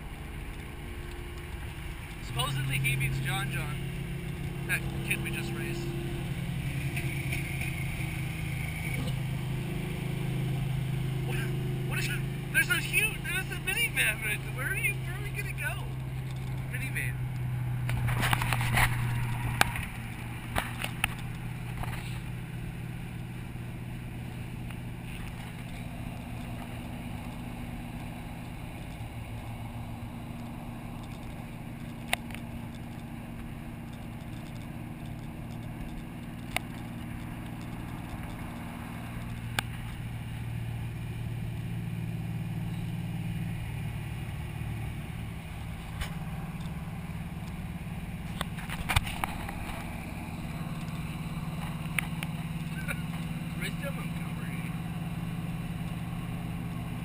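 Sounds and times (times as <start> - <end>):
car engine cruising: 0.0 - 57.0
sharp clicks: 24.6 - 40.1, 45.6 - 54.8.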